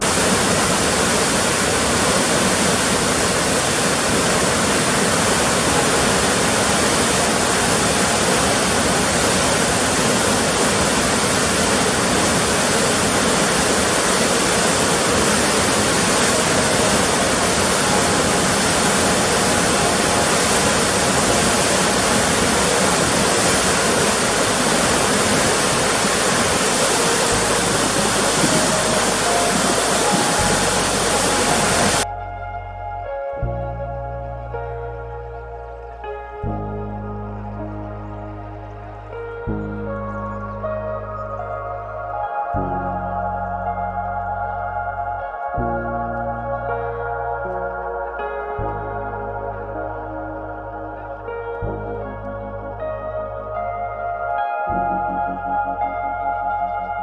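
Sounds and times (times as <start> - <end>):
water rushing: 0.0 - 32.1
faint music notes: 0.0 - 57.0.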